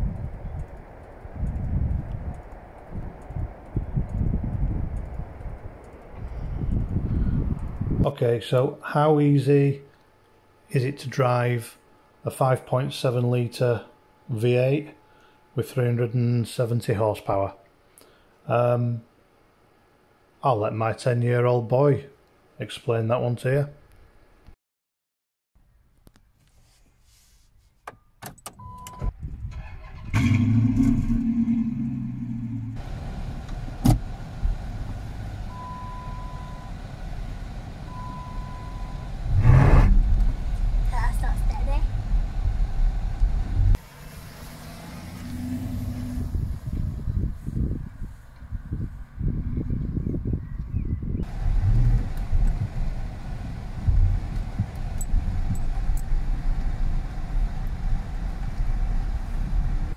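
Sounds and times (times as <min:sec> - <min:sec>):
car engine starting and idling: 0:28.5 - 0:47.0, 0:51.2 - 0:59.9.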